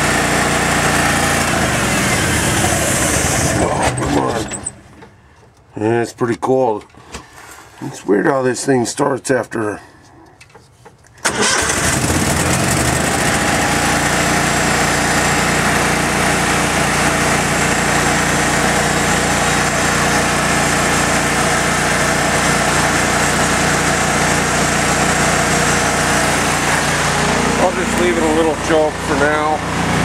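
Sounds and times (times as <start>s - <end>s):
small engine starting and running: 0.0s - 4.9s, 11.2s - 30.0s.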